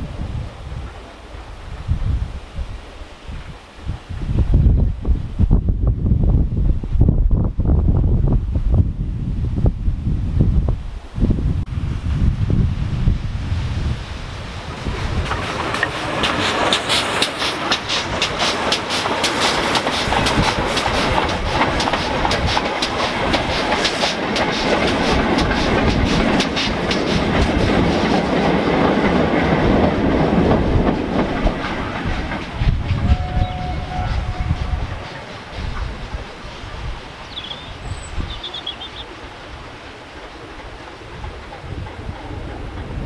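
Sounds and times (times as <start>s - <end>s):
train rumble: 0.0s - 43.0s
train wheels clicking over rail joints: 14.7s - 43.0s.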